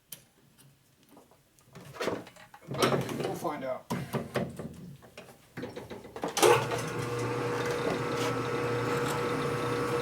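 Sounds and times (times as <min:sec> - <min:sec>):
electric motor humming and whining: 0:06.5 - 0:10.0.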